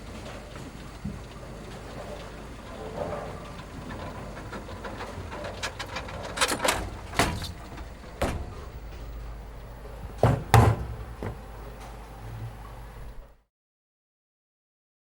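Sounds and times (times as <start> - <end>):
low steady hum: 0.0 - 13.4
irregular knocks and bangs: 7.2 - 9.2, 10.1 - 11.4.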